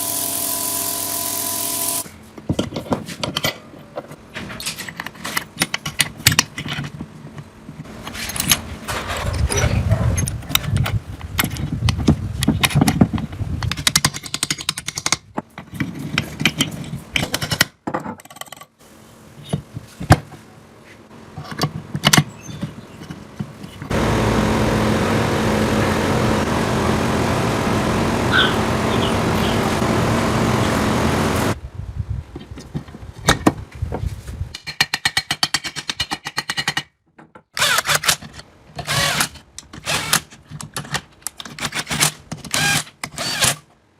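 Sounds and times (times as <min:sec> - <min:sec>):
engine running: 0:23.9 - 0:31.6.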